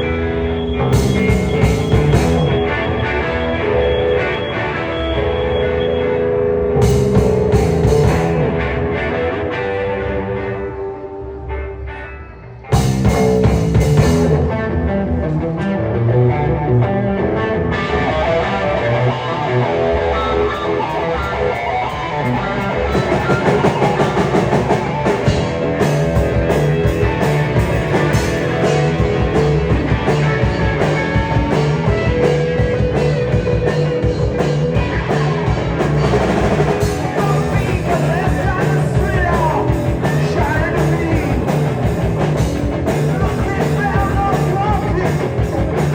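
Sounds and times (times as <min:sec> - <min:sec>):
electric guitar: 0:00.0 - 0:45.9
drum kit with cymbals: 0:00.8 - 0:02.7, 0:06.8 - 0:08.4, 0:12.7 - 0:14.4, 0:22.6 - 0:45.9.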